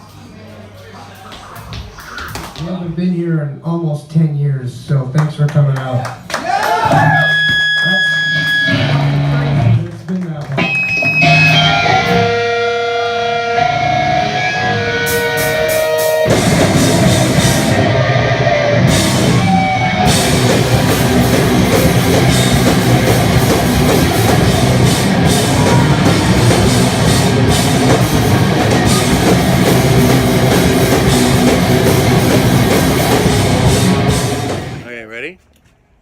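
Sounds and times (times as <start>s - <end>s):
heavy rock band playing: 7.0s - 9.8s, 10.6s - 34.9s
held electric guitar notes: 10.6s - 34.9s.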